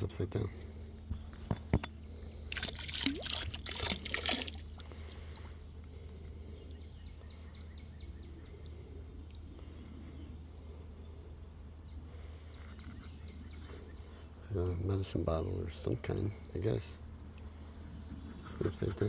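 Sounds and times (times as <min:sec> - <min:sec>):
faint steady background noise: 0:00.0 - 0:19.0
water pouring from glass bottle: 0:02.5 - 0:05.0.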